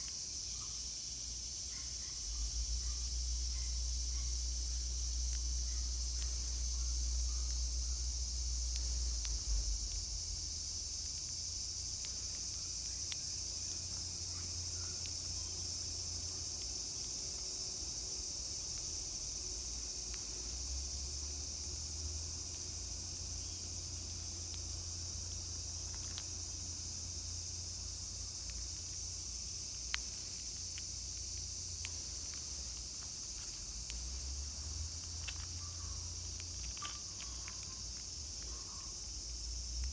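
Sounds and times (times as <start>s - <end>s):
insects droning: 0.0s - 39.9s
faint clicks: 6.1s - 7.7s, 8.6s - 10.1s, 11.9s - 15.5s, 20.0s - 20.5s, 25.3s - 26.4s, 29.8s - 34.0s, 35.0s - 39.9s.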